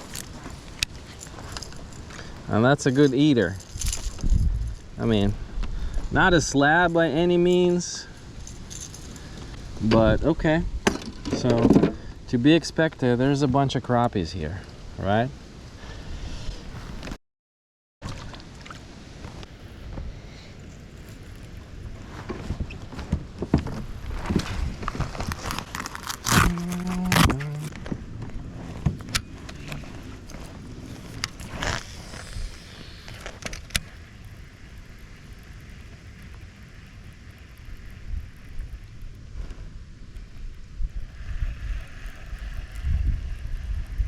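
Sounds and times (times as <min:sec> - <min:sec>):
gear clicking and rattling: 0:00.0 - 0:04.9
short low hum: 0:26.3 - 0:27.8.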